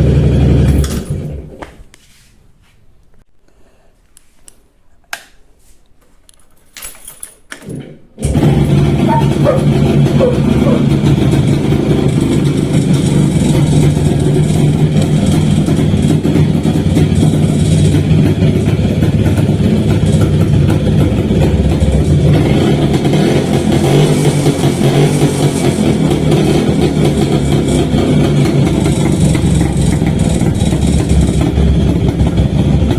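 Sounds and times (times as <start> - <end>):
scooter engine idling: 0.0 - 1.6, 8.2 - 32.9.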